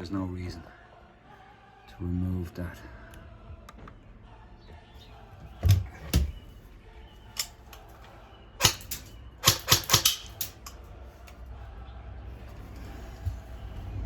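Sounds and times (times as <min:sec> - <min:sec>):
toy rifle mechanism clicks and knocks: 0:07.4 - 0:07.9, 0:08.6 - 0:10.8.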